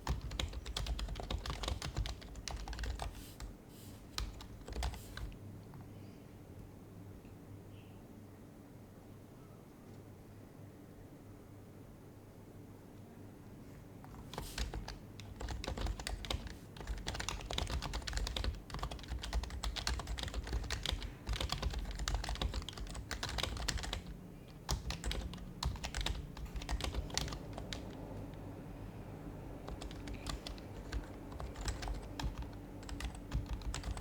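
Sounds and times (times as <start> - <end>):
fast keyboard typing: 0.0 - 5.4, 14.0 - 28.6, 29.5 - 34.0.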